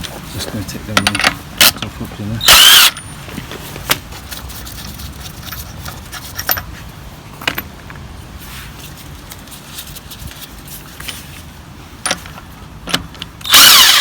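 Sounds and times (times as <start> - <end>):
metallic clinks of wheel nuts: 0.9 - 3.2, 12.0 - 13.6.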